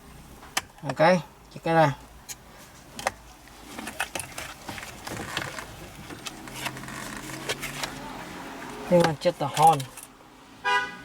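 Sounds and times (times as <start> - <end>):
plastic parts clicking and rattling: 9.0 - 10.2.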